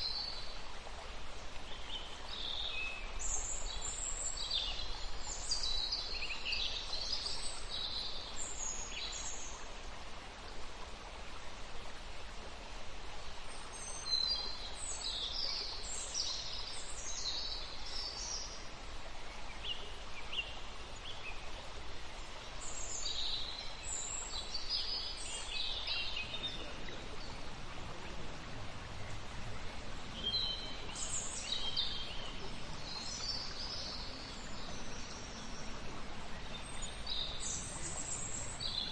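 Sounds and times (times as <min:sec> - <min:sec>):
background hiss: 0:00.0 - 0:38.9
wild birds chirping: 0:22.4 - 0:38.9.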